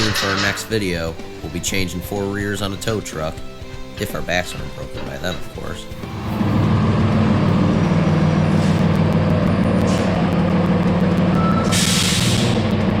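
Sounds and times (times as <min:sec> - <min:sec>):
air hiss: 0:00.0 - 0:01.0, 0:11.7 - 0:12.6
heavy vehicle engine idling: 0:05.6 - 0:13.0.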